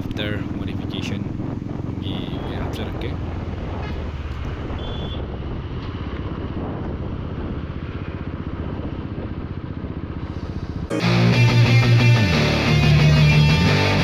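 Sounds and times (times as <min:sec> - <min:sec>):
loud rock music: 0:10.9 - 0:14.0.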